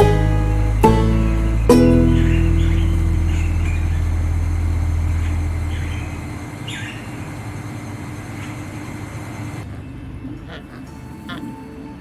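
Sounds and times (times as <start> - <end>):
low sustained tone: 0.0 - 7.1
bird chirping: 0.0 - 7.3
steady rumbling hum: 0.0 - 11.3.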